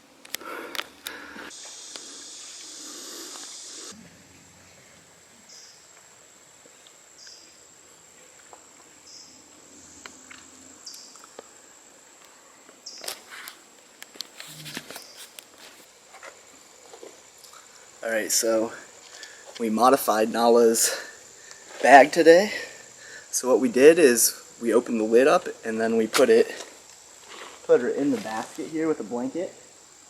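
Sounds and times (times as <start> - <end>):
insect buzz: 0.0 - 30.0
footsteps on trail: 26.5 - 28.6.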